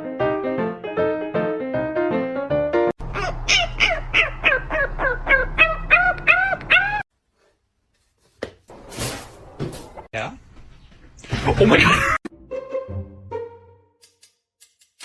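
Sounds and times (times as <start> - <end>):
piano music: 0.0 - 3.0
animal calling: 3.0 - 7.0.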